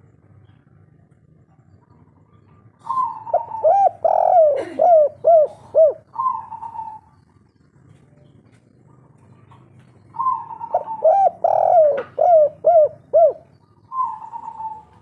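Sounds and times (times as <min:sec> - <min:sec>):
dove cooing: 0:01.9 - 0:07.4, 0:08.8 - 0:15.0.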